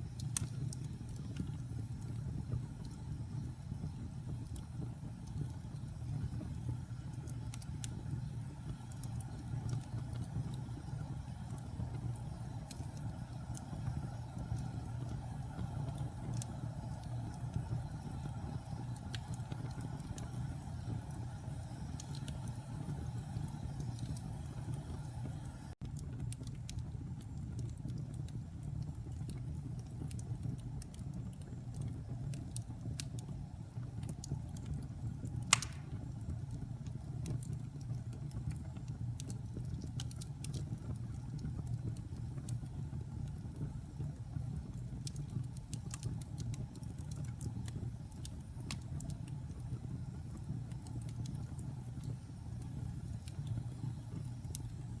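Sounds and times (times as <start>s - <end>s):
fire crackling: 0.0s - 55.0s
fire rumbling in fireplace: 0.0s - 55.0s
loud pop of fire: 35.4s - 36.3s.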